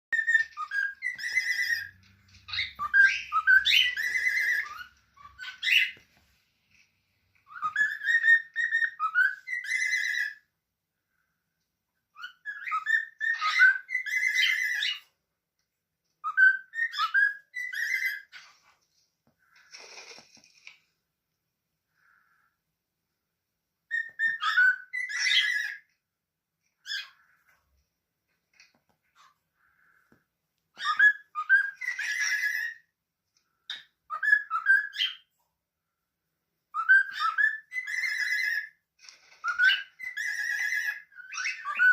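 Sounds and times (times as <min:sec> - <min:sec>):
cockatiel whistling: 0:00.1 - 0:06.0, 0:07.4 - 0:10.4, 0:12.2 - 0:15.1, 0:16.2 - 0:18.4, 0:23.9 - 0:25.9, 0:30.8 - 0:32.9, 0:33.7 - 0:35.3, 0:36.7 - 0:38.8, 0:39.4 - 0:41.9.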